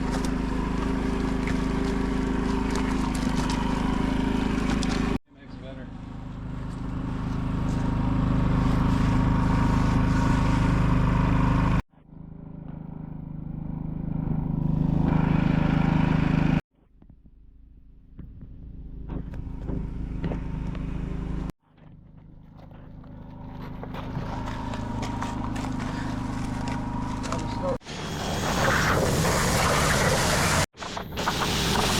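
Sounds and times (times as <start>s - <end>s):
motor running: 0.0s - 16.6s, 18.4s - 31.9s
hiss: 27.9s - 31.9s.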